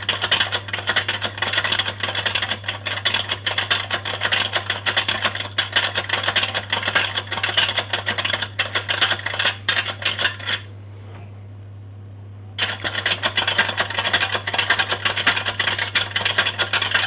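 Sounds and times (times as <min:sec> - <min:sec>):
toy mechanism clattering rattle: 0:00.0 - 0:10.6, 0:12.6 - 0:17.0.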